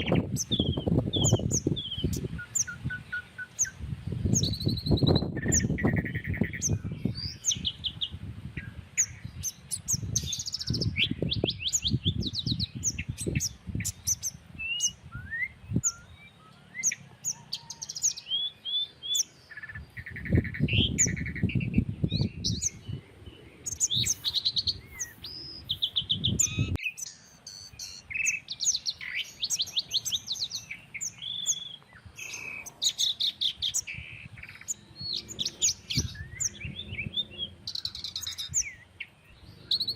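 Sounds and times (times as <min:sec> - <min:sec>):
wind rumbling on microphone: 0:00.0 - 0:16.4, 0:19.6 - 0:26.8, 0:28.2 - 0:39.9
small birds chirping and trilling: 0:00.0 - 0:39.9.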